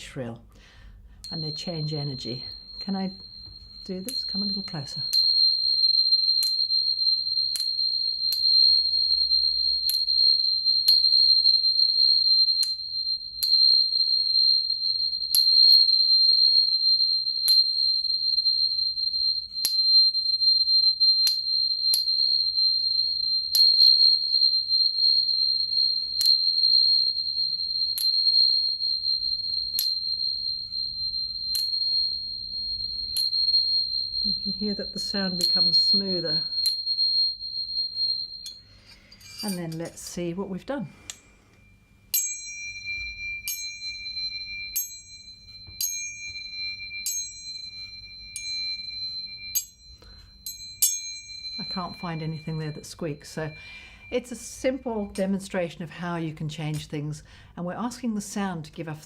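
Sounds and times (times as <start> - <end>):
tuning forks ringing: 1.1 - 55.3
tuning fork strike taps: 2.2 - 5.4, 41.1 - 52.8.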